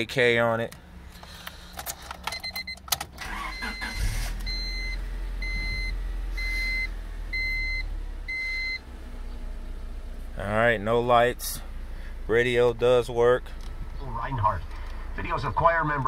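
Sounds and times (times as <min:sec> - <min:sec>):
car engine starting and idling: 0:00.0 - 0:16.0
ignition clicks: 0:00.6 - 0:06.8, 0:13.5 - 0:15.0
dashboard warning chime: 0:02.3 - 0:08.8.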